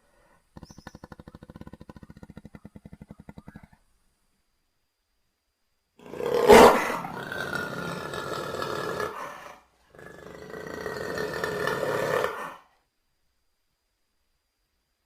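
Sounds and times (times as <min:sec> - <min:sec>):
jaguar calling harshly: 0:06.0 - 0:09.6.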